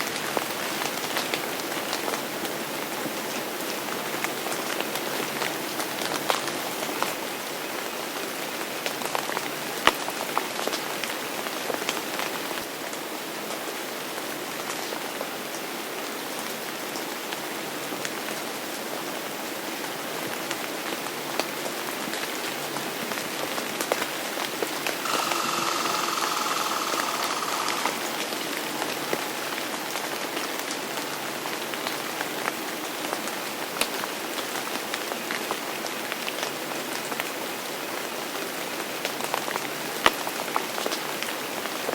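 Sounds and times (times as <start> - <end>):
steady rain: 0.0 - 41.9
faint steady tone: 25.0 - 28.2.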